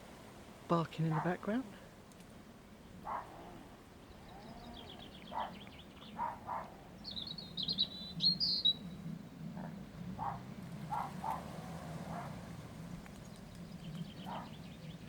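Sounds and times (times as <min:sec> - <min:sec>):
songbird singing: 0:00.0 - 0:15.0
dog barking: 0:01.1 - 0:01.5, 0:03.0 - 0:03.6, 0:05.3 - 0:06.8, 0:09.6 - 0:12.4, 0:14.2 - 0:14.6.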